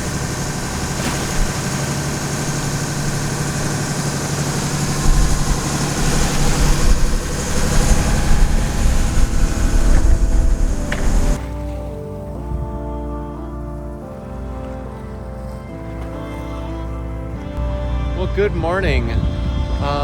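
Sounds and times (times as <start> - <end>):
wind buffeting microphone: 0.0 - 11.4, 18.6 - 20.0
boat engine humming: 0.0 - 19.9.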